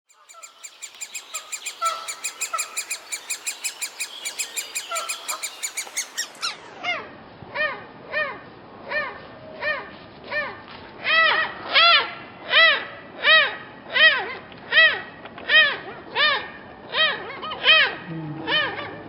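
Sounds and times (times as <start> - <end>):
woodpecker nestlings begging calls: 0.1 - 6.7.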